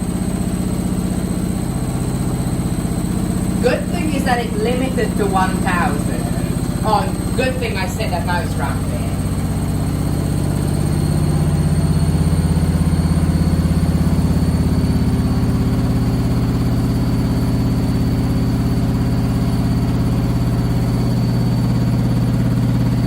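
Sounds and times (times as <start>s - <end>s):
thin high whine: 2.9s - 12.8s.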